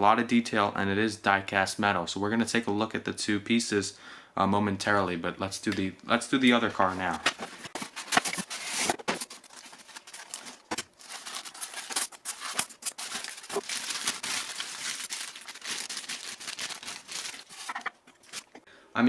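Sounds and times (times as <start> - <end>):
cardboard box rustling and scraping: 6.8 - 18.5.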